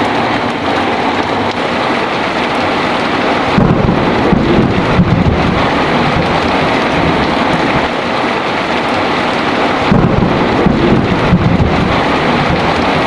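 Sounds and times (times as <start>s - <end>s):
heavy rain falling: 0.0s - 13.0s
thunder rumbling low: 2.4s - 8.1s, 9.7s - 13.0s.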